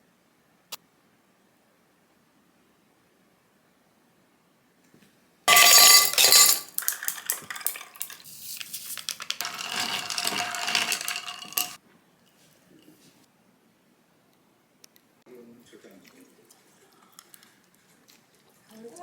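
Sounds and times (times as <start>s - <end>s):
dishes and cutlery clattering: 5.5s - 8.2s, 9.4s - 11.8s.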